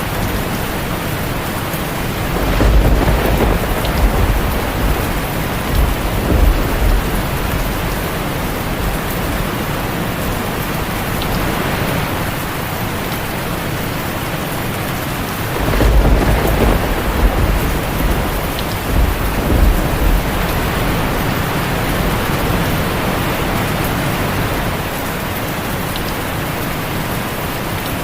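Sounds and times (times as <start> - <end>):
heavy rain on a tin roof: 0.0 - 28.0
rolling thunder: 0.1 - 11.1, 15.2 - 25.0.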